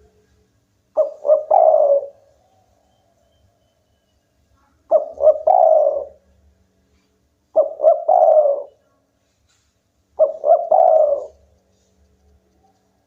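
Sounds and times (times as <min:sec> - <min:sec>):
dove cooing: 0:01.0 - 0:03.1, 0:04.9 - 0:06.2, 0:07.5 - 0:08.8, 0:10.2 - 0:11.5.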